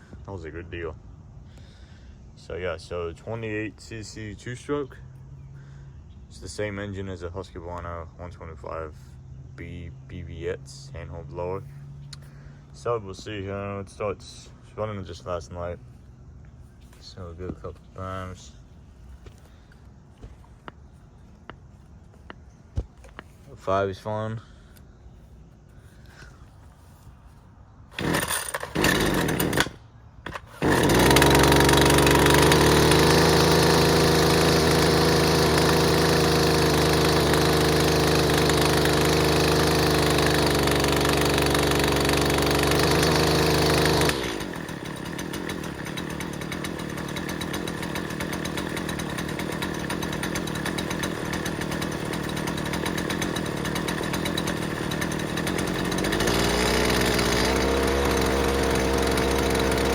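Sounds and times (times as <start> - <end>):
pull cord starting: 27.9 - 59.9
string trimmer engine running: 27.9 - 59.9.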